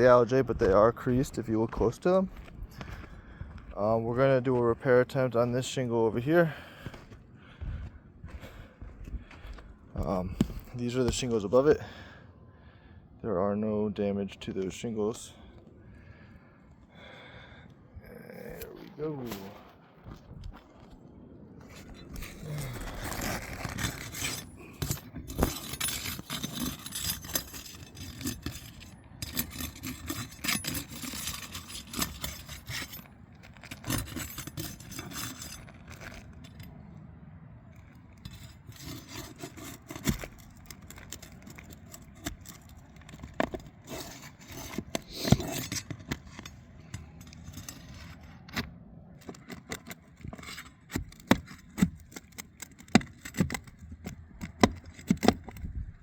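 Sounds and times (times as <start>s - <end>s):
tool scraping roof shingles: 10.0s - 11.7s, 21.6s - 36.8s, 37.7s - 56.0s
sharp clicks and knocks: 38.2s - 55.7s.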